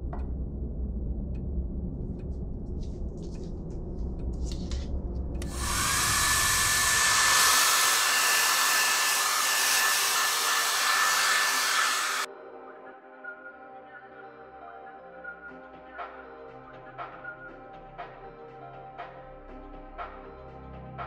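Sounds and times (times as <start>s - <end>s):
low hum: 0.0s - 12.3s
hair dryer running: 5.4s - 12.3s.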